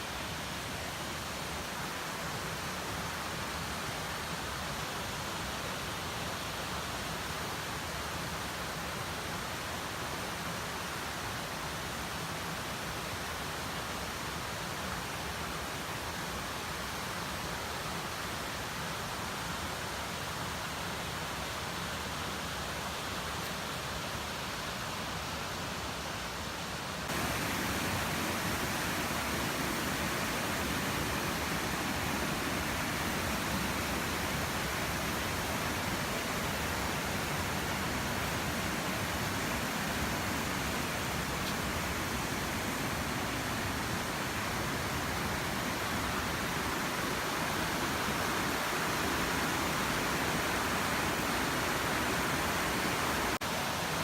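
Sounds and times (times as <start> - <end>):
waterfall rushing: 27.0 - 54.0.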